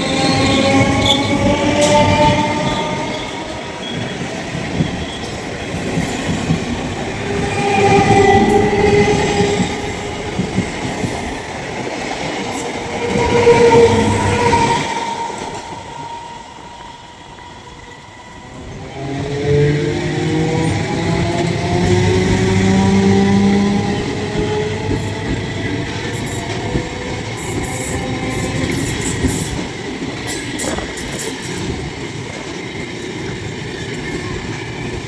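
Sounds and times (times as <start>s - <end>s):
train wheels squealing: 0.0s - 11.5s, 12.4s - 18.9s, 21.9s - 35.0s
train rumbling on rails: 0.0s - 35.0s.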